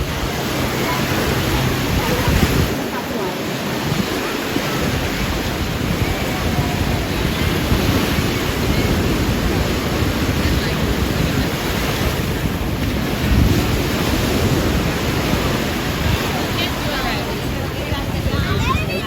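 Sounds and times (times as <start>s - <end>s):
surf washing onto beach: 0.0s - 19.0s
wind buffeting microphone: 0.0s - 19.0s.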